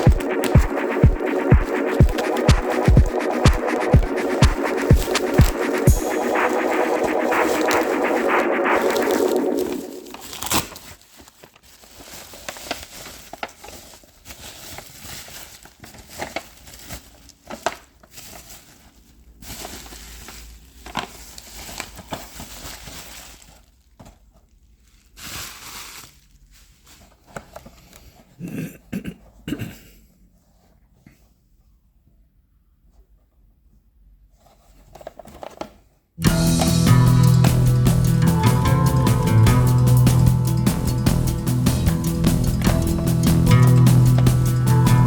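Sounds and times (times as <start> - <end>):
plastic and cardboard crinkling: 8.8 - 28.2, 34.4 - 36.0.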